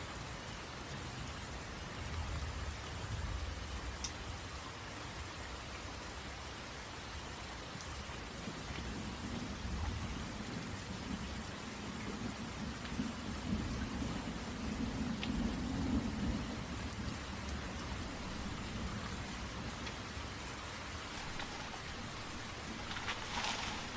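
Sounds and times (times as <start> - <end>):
rain falling on a tent: 0.0 - 23.9
rolling thunder: 14.8 - 20.2.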